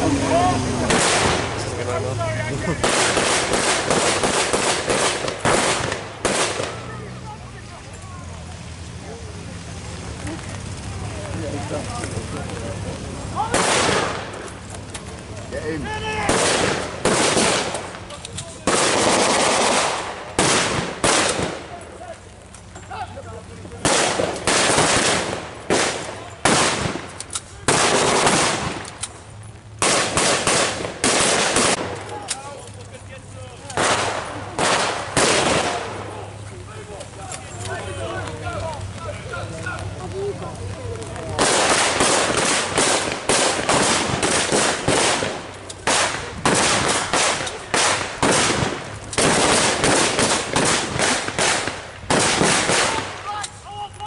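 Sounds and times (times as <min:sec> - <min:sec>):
bursts of blank gunfire: 0:00.8 - 0:01.6, 0:02.8 - 0:07.0, 0:13.4 - 0:14.5, 0:16.2 - 0:21.8, 0:23.8 - 0:29.0, 0:29.8 - 0:32.2, 0:33.8 - 0:36.3, 0:41.4 - 0:53.5
single sharp gunshot cracks: 0:13.5 - 0:14.3, 0:33.8 - 0:35.8.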